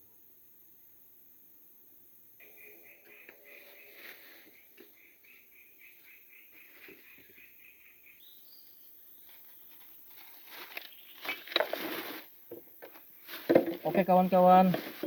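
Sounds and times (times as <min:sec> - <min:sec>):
insect or bird pulsing call: 0:02.4 - 0:09.4
close-up rustling: 0:09.2 - 0:15.0.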